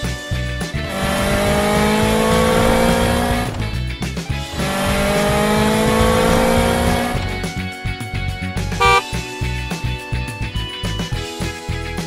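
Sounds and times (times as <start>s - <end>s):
background music: 0.0s - 12.0s
cartoon race car engine revving: 0.8s - 3.8s, 4.4s - 7.4s, 8.8s - 9.0s.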